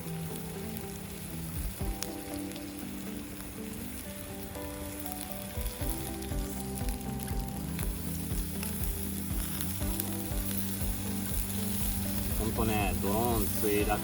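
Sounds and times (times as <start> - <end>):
background music with held notes: 0.0 - 14.0
campfire sizzling and crackling: 0.0 - 14.0
soft beat: 1.5 - 14.0.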